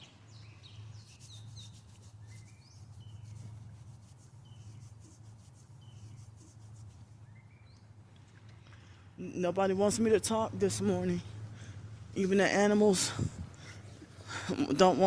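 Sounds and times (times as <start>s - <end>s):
birds chirping: 0.0s - 9.0s
steady low hum: 0.0s - 15.0s.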